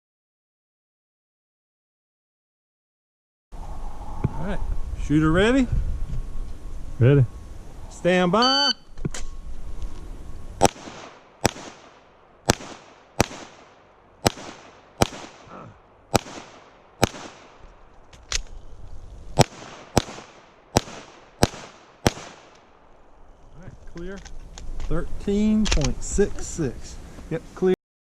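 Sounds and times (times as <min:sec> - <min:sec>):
pistol shots with echo: 0:10.6 - 0:15.5, 0:16.1 - 0:17.6, 0:19.4 - 0:22.6.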